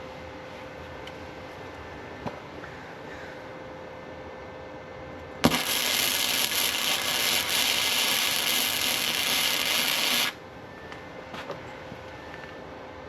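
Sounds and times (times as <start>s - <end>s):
welder arc crackling: 5.4s - 10.4s.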